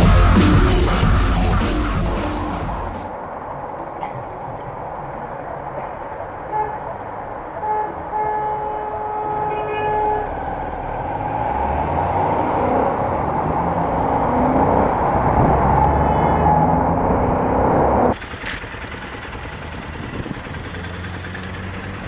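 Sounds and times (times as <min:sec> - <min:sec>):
low engine rumble: 0:00.0 - 0:22.0
horn blasts: 0:06.5 - 0:06.9, 0:07.5 - 0:10.7.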